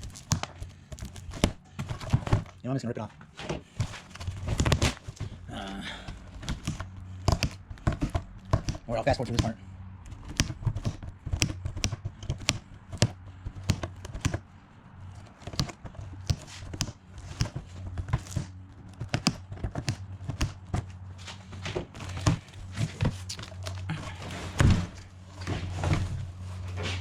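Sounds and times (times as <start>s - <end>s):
low steady hum: 0.0s - 27.0s
cardboard box tearing and scraping: 3.8s - 5.4s.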